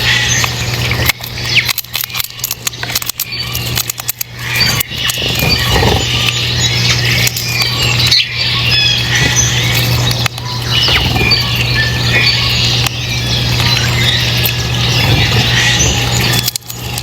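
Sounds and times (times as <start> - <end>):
low hum: 0.0 - 17.0
small birds chirping: 0.0 - 17.0.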